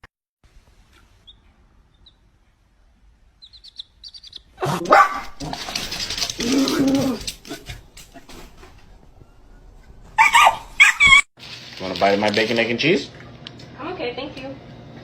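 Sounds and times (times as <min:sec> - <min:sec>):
dog vocalizing loudly: 0:10.2 - 0:11.3.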